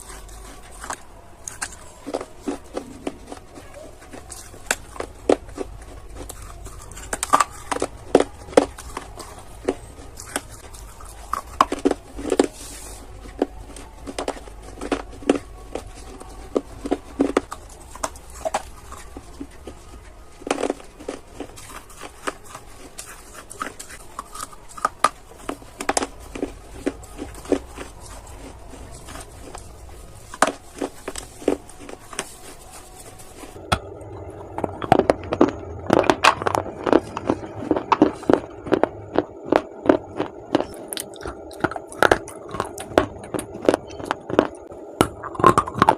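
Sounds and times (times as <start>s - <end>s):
clay being chewed with crunches: 0.0s - 45.9s
steady low hum: 0.0s - 45.9s.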